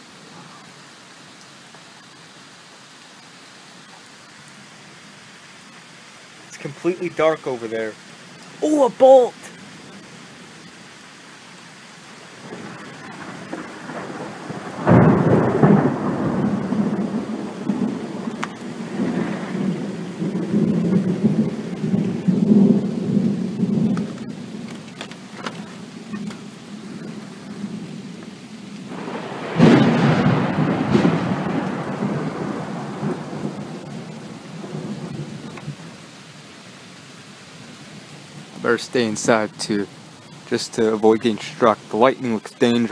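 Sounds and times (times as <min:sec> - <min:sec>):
steady rain: 0:00.0 - 0:42.9
thunder cracking and rumbling: 0:12.4 - 0:28.2, 0:28.8 - 0:35.8.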